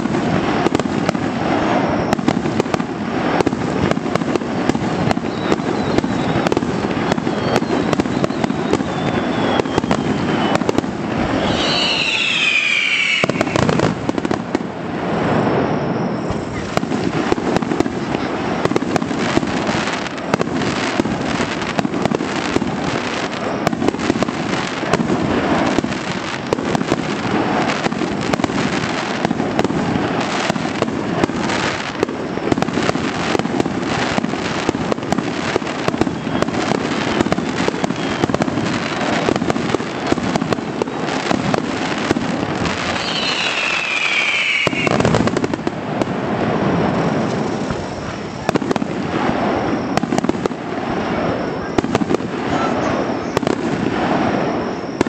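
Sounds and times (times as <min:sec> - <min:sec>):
fireworks bursting: 0:00.0 - 0:55.0
fireworks crackle: 0:00.0 - 0:55.0
falling whistle: 0:05.1 - 0:13.7, 0:15.4 - 0:16.8, 0:36.0 - 0:38.4, 0:42.8 - 0:45.2.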